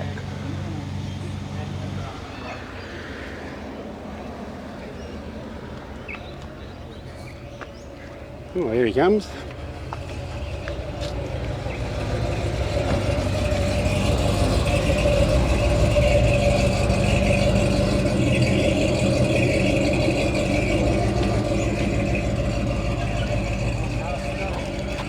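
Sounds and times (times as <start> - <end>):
car engine running: 6.6 - 25.0.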